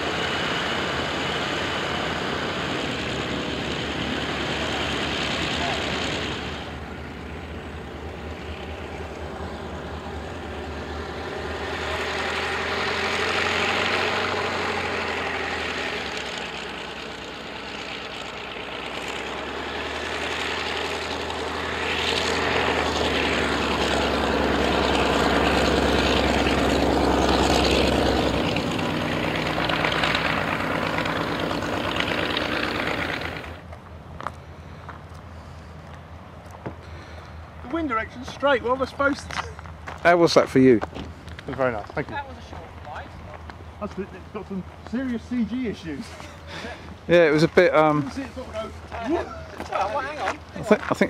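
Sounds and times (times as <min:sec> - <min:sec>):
model aeroplane engine and propeller: 0:00.0 - 0:12.4, 0:14.7 - 0:33.7.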